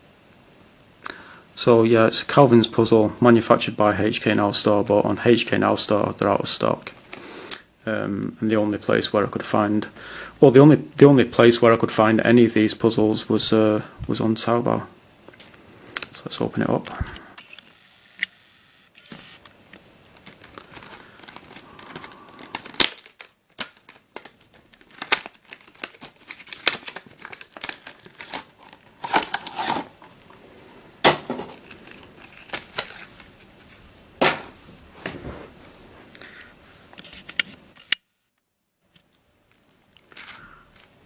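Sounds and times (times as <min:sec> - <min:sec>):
plastic wrapping crinkling: 0:19.8 - 0:30.4, 0:31.0 - 0:34.6.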